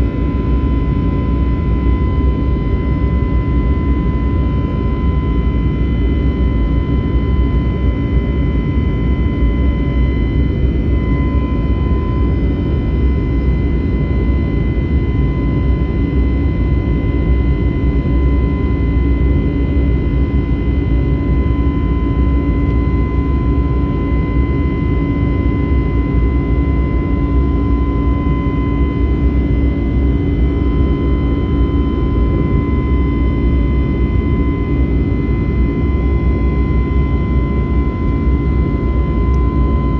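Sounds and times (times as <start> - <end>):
jet engine roar in cabin: 0.0 - 39.9
thin high hum: 9.7 - 14.0, 36.5 - 39.9.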